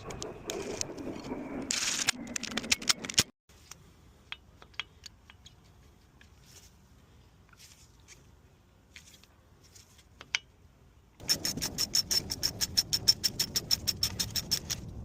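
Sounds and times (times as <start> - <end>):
metal scraping: 0.0 - 3.3
sharp metallic clicks: 11.2 - 15.0.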